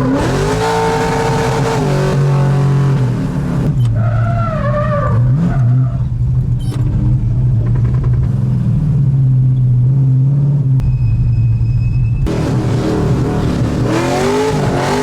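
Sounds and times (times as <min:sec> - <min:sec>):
car engine running: 0:12.2 - 0:15.0.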